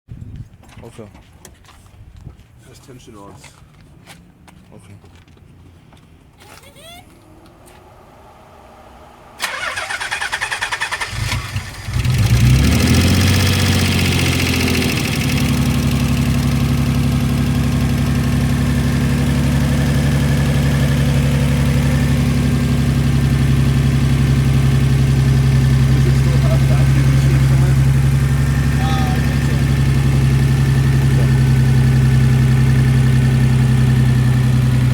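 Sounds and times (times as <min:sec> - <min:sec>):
car engine idling: 0:07.3 - 0:34.9
starter motor cranking: 0:09.4 - 0:12.3.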